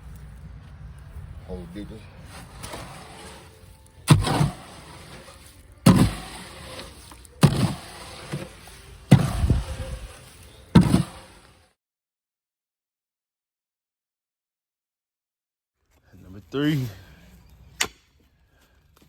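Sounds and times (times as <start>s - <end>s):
digging tool striking ground: 2.3s - 11.6s.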